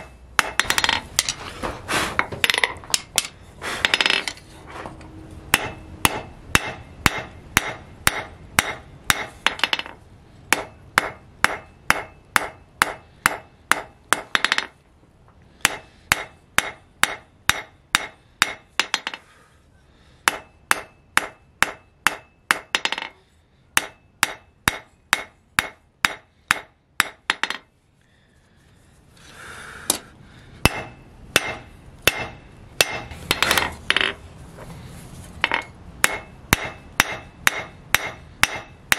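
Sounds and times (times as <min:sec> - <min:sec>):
hammer striking steel on anvil: 0:00.0 - 0:01.3, 0:05.5 - 0:14.7, 0:15.6 - 0:19.2, 0:20.2 - 0:23.2, 0:23.8 - 0:27.7, 0:30.6 - 0:34.1, 0:35.4 - 0:38.9.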